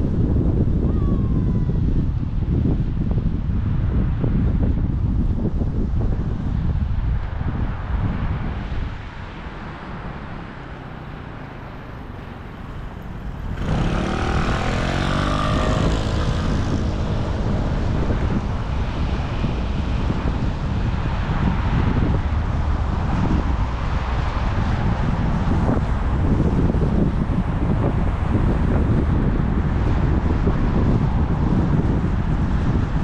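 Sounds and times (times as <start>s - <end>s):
wind rushing over microphone: 0.0s - 33.0s
motor vehicle passing close: 9.8s - 28.6s.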